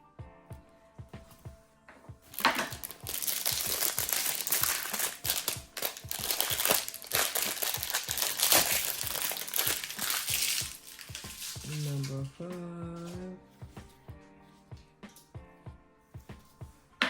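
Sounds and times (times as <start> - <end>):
plastic packaging crinkling: 2.3 - 12.4.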